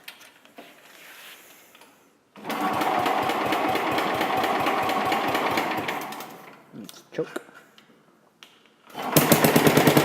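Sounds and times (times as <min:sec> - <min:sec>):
engine cranking by starter: 0:08.9 - 0:10.0.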